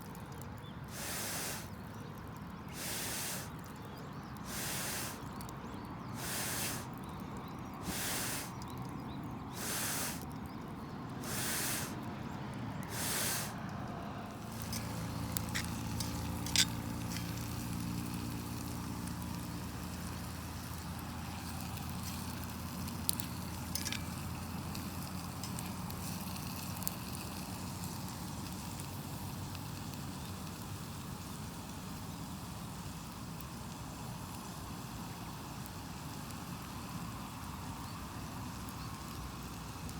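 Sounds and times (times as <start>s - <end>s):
fire crackling snaps: 0.0s - 12.2s, 12.8s - 39.9s
puffs of blown air: 0.9s - 1.8s, 2.7s - 3.6s, 4.4s - 5.3s, 6.1s - 7.0s, 7.8s - 8.6s, 9.5s - 10.2s, 11.2s - 12.0s, 12.9s - 13.7s.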